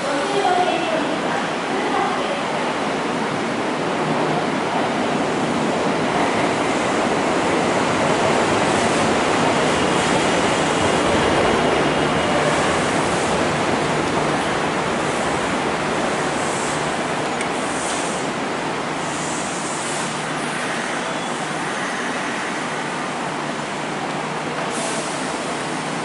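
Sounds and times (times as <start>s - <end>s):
train wheels rumbling: 3.8s - 20.9s.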